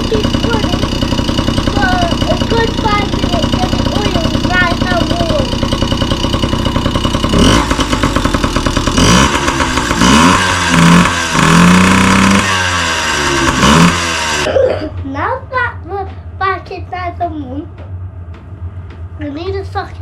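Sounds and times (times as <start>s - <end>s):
small two-stroke engine revving: 0.0s - 14.5s.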